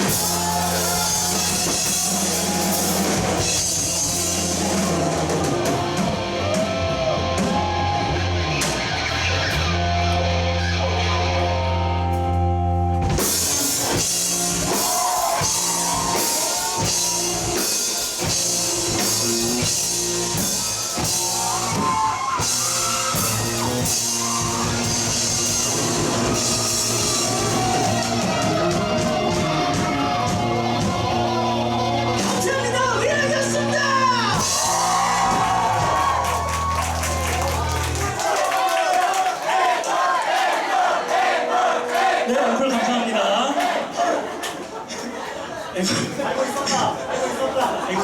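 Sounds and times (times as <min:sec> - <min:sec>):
drum kit hits: 0:00.0 - 0:10.0, 0:13.0 - 0:31.3, 0:34.2 - 0:37.9
bass guitar: 0:00.0 - 0:38.2
electric guitars: 0:00.0 - 0:38.2.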